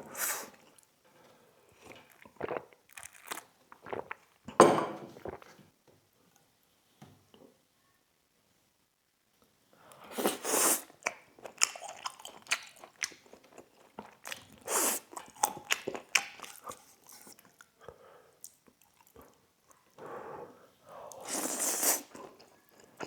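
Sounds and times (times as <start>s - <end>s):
chewing with wet mouth clicks: 11.0s - 17.7s, 18.4s - 19.9s.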